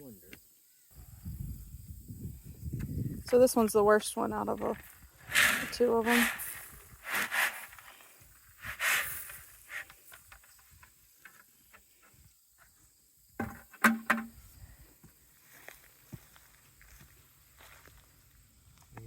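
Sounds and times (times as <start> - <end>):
high hum of insects: 0.0 - 19.0
sharp knocks: 13.4 - 14.4.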